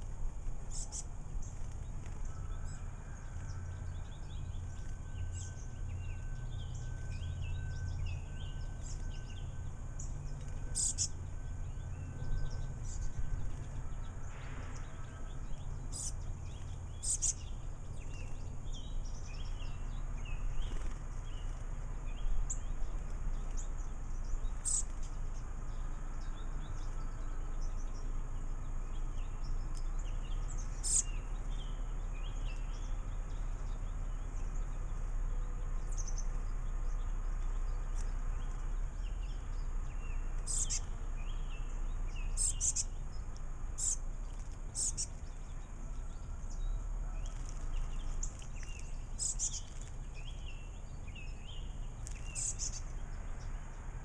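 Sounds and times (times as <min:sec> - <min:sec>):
small birds chirping: 0:00.0 - 0:54.0
sharp high bird calls: 0:02.0 - 0:15.3, 0:30.4 - 0:31.8, 0:42.3 - 0:43.0.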